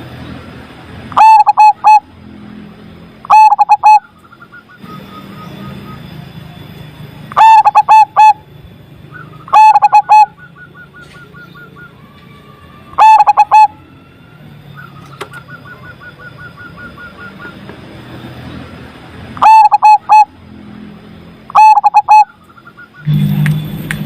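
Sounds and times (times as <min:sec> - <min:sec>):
dove cooing: 0:01.1 - 0:02.1, 0:03.3 - 0:04.1, 0:07.4 - 0:08.4, 0:09.5 - 0:12.0, 0:13.0 - 0:13.8, 0:19.4 - 0:20.4, 0:21.5 - 0:22.4.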